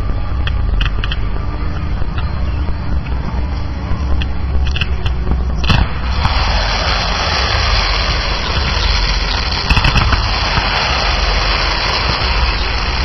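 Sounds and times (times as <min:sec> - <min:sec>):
fireworks low rumble: 0:00.0 - 0:13.0
fireworks cracks: 0:04.6 - 0:13.0
fireworks crackling hiss: 0:05.6 - 0:13.0.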